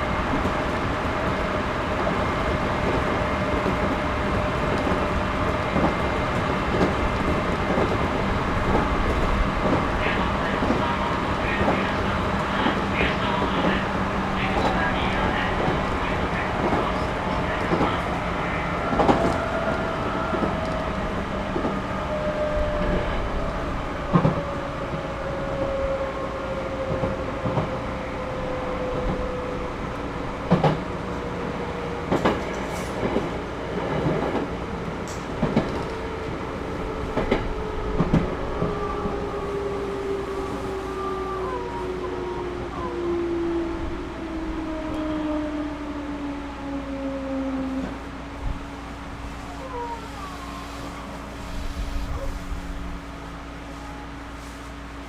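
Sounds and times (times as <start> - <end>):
falling train whine: 0.0 - 55.0
train carriage rumble: 0.0 - 55.0.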